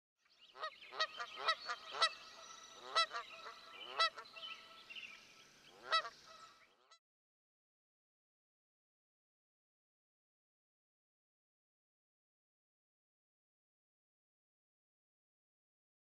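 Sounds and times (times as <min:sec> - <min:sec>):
chorus of faint bird calls: 0:00.2 - 0:07.0.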